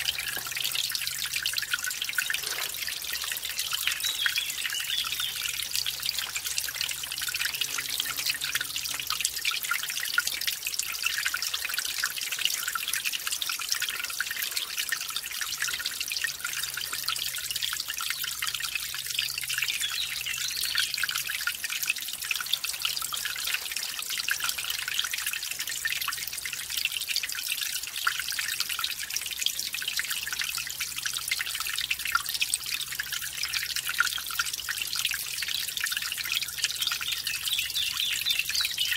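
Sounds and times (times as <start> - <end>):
stream trickling and splashing: 0.0 - 38.9.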